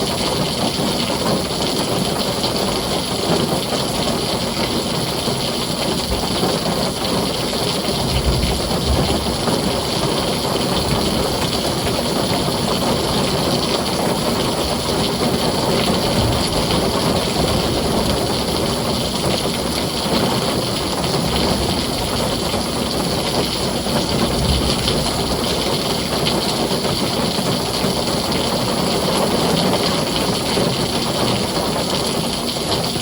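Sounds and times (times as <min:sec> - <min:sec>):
heavy rain on a tin roof: 0:00.0 - 0:33.0.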